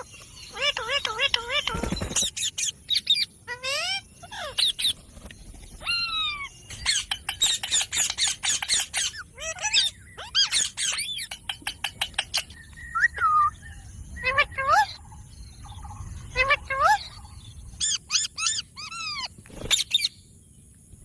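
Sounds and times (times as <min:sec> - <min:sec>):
parrot clicking chatter: 0:00.0 - 0:02.7
parrot chirps and squawks: 0:00.0 - 0:05.0, 0:05.8 - 0:15.0, 0:16.2 - 0:20.1.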